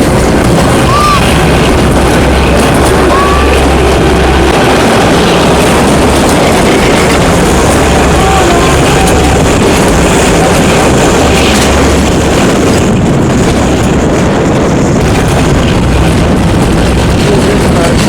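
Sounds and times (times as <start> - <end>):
train running: 0.0 - 18.0
wind buffeting microphone: 0.0 - 18.0.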